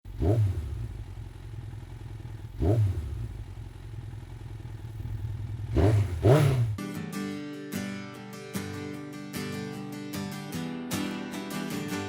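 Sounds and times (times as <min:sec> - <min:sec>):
motorcycle engine idling: 0:00.1 - 0:06.8
motorcycle throttle blips: 0:00.1 - 0:06.8.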